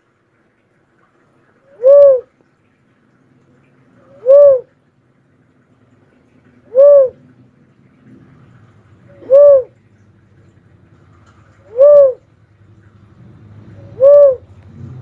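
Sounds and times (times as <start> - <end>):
dove cooing: 1.7 - 2.3, 4.0 - 4.7, 6.6 - 7.3, 9.1 - 9.8, 11.5 - 12.3, 13.7 - 14.5.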